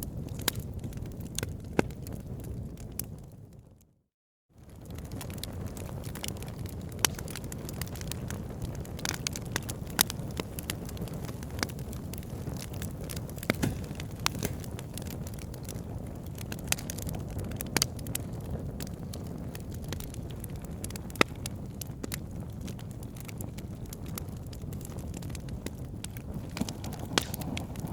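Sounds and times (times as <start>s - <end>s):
campfire crackling and popping: 0.0s - 3.6s, 4.6s - 27.9s
low fire rumble: 0.0s - 3.9s, 4.6s - 27.9s.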